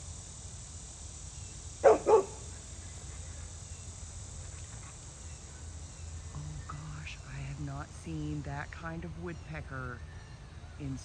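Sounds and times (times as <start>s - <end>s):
low background hum: 0.0s - 11.0s
dog barking: 1.8s - 2.5s.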